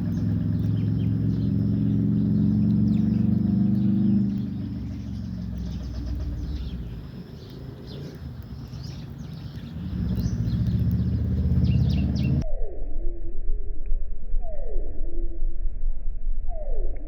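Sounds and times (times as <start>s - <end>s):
low engine drone: 0.0s - 12.4s
sparrows chirping: 0.0s - 12.4s.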